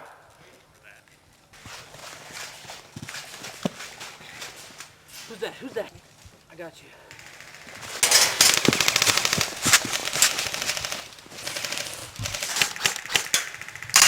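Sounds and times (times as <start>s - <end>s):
airsoft guns firing bursts: 7.1s - 14.0s.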